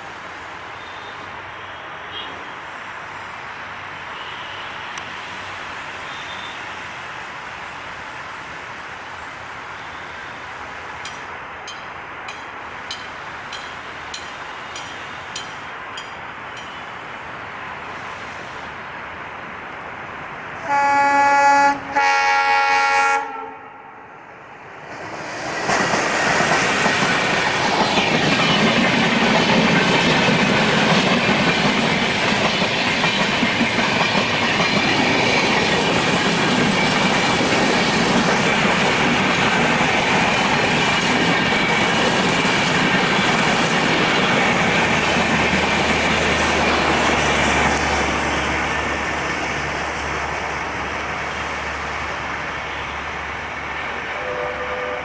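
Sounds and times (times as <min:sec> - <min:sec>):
train coaches rumbling past: 0:00.0 - 0:55.0
diesel locomotive horn blasts: 0:20.6 - 0:24.0, 0:54.1 - 0:55.0.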